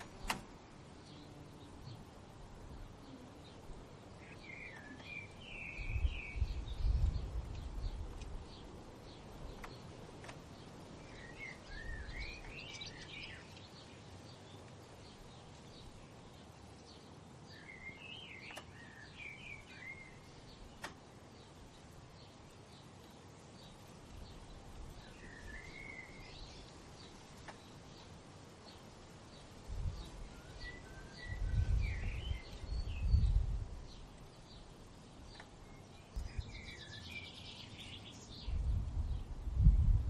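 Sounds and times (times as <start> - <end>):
low rumble of wind: 0.0 - 40.0
outdoor hiss: 0.0 - 40.0
songbird warbling: 2.7 - 10.0, 10.6 - 14.0, 17.5 - 21.0, 25.0 - 28.1, 34.0 - 38.6.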